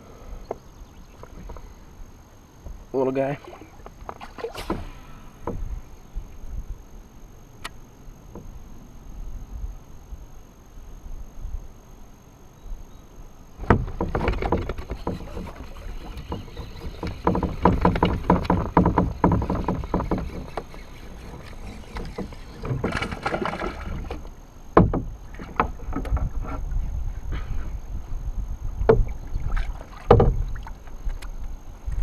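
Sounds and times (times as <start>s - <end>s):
water noise: 2.6s - 9.1s, 13.5s - 26.8s, 28.7s - 32.0s
knocks against kayak hull: 4.0s - 5.8s, 13.6s - 15.5s, 16.1s - 20.8s, 21.9s - 26.6s, 28.8s - 29.1s, 30.0s - 30.5s.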